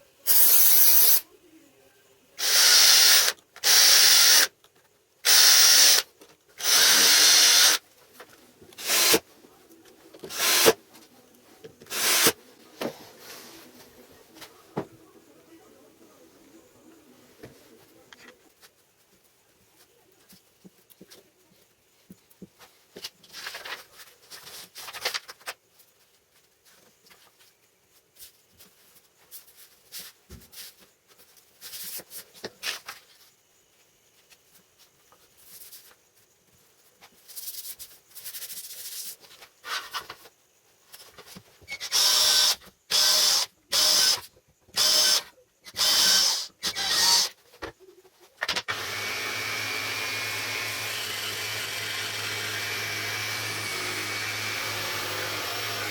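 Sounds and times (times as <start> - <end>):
power tool running with whine: 45.8 - 47.3, 48.7 - 55.9.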